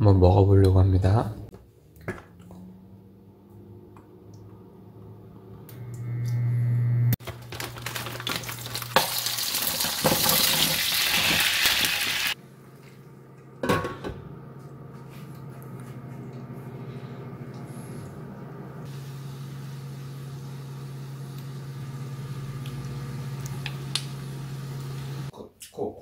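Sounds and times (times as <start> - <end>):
low hum: 1.4 - 7.2, 12.4 - 25.3
dumplings sizzling in hot oil: 8.0 - 12.4.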